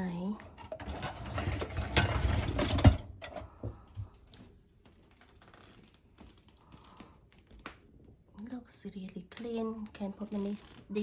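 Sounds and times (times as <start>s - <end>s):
dishwasher racks rattling: 0.6s - 3.5s.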